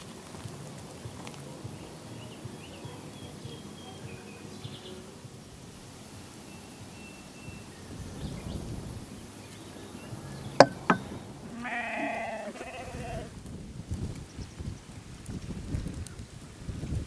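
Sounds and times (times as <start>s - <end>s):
sharp knocks: 10.6s - 11.4s
farm animal bleating: 11.4s - 13.3s.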